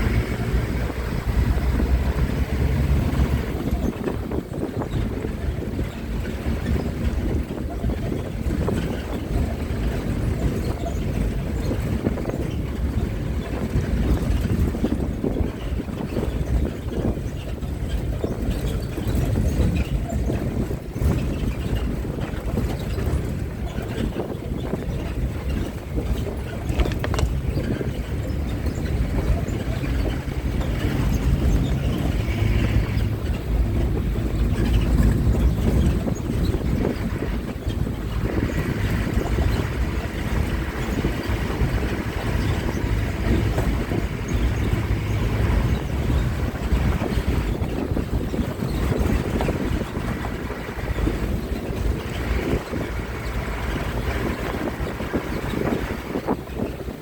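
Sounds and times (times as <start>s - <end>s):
moving bus rumble: 0.0s - 57.0s
wind buffeting microphone: 0.0s - 57.0s.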